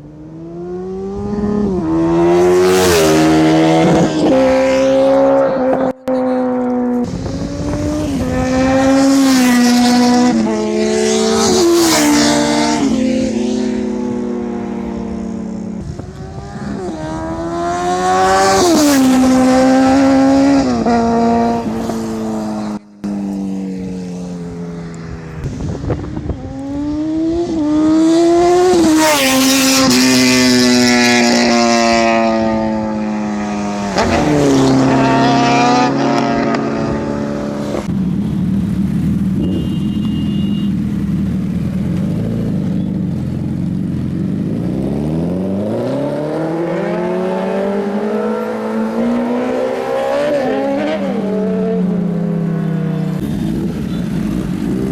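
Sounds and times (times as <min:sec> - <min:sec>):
motorcycle engines revving: 0:00.0 - 0:54.9.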